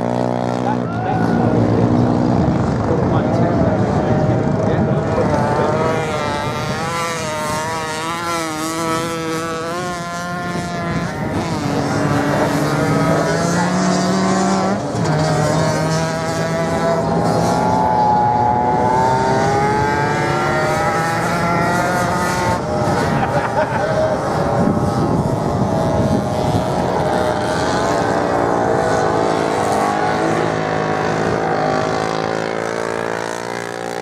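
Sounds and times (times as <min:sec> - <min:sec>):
motorcycle engines revving: 0:00.0 - 0:34.0.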